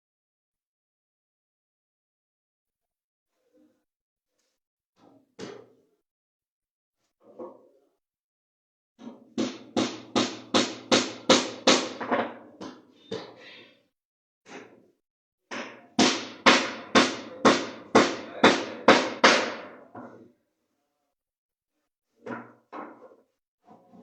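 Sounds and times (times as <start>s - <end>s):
hammering on a wooden box: 9.4s - 12.8s, 15.5s - 19.8s.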